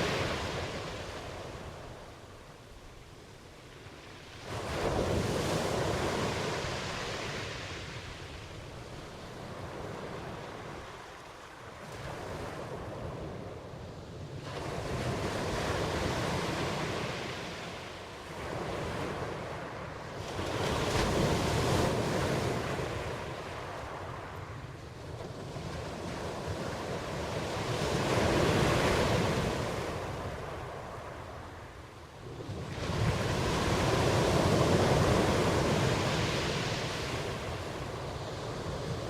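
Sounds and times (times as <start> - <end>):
ocean waves surging: 0.0 - 2.4, 32.6 - 39.0.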